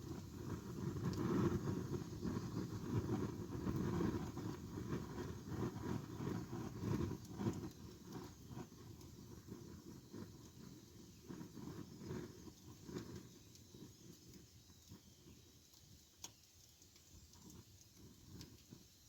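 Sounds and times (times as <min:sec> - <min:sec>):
campfire burning: 0:00.0 - 0:19.0.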